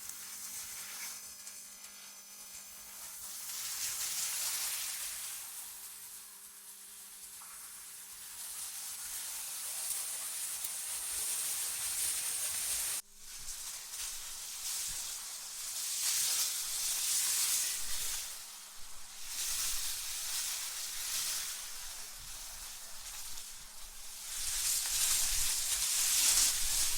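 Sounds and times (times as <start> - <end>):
wind gusts hissing: 17.6 - 26.9.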